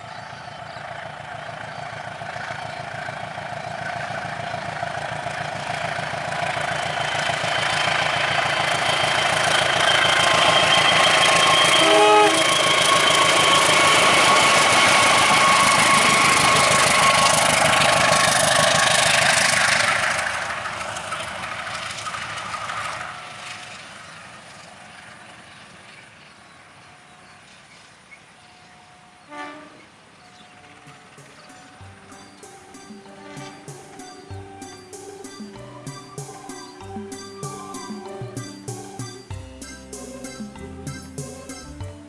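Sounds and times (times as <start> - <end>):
train wheels on rails: 0.0 - 42.0
high ringing tones: 2.3 - 20.6, 30.3 - 42.0.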